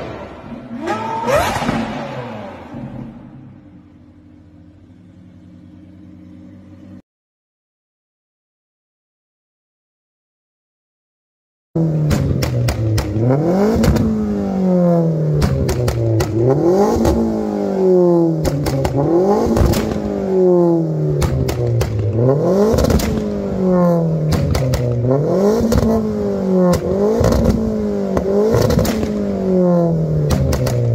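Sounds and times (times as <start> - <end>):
car engine revving: 0.0 - 7.0, 11.8 - 30.9
exhaust pops and crackles: 12.1 - 14.2, 15.3 - 17.2, 18.4 - 20.1, 21.2 - 23.4, 24.2 - 26.0, 26.7 - 29.2, 30.2 - 30.9.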